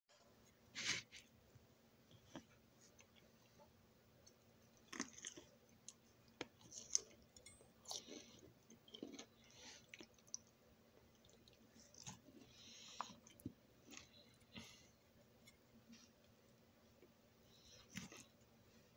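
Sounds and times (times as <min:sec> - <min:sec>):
person chewing crunchy food: 0:04.2 - 0:16.2.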